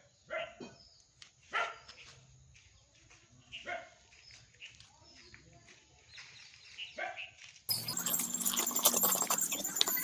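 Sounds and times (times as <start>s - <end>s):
dog barking: 0.3s - 0.7s, 1.5s - 1.9s, 3.6s - 4.0s, 7.0s - 7.3s.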